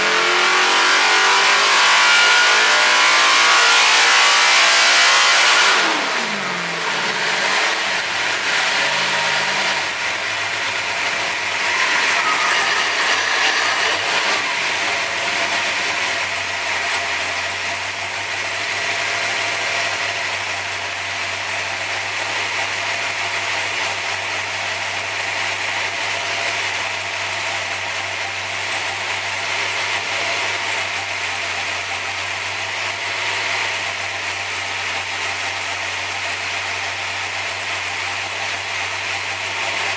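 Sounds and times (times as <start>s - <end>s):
race engine revs falling to idle: 0.0s - 39.9s
high mechanical rattle: 8.1s - 18.0s.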